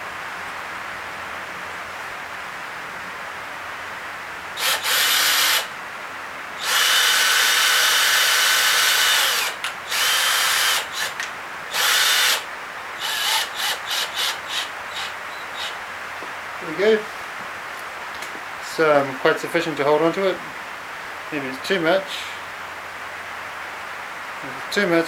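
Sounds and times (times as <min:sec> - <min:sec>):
electric drill whining: 0:04.6 - 0:05.7, 0:06.6 - 0:15.8.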